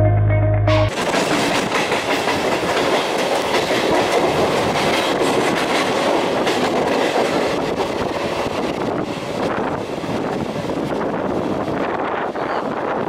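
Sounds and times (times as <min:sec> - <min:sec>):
wheels clacking over rail joints: 0:00.9 - 0:11.0
train wheel and rail noise: 0:00.9 - 0:13.0.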